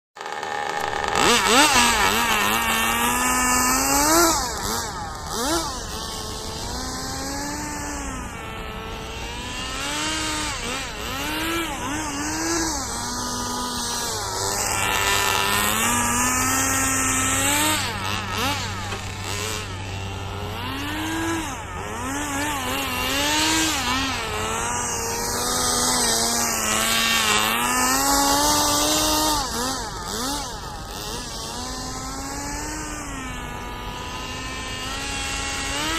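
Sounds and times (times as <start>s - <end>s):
small nitro engine revving: 0.2s - 35.9s.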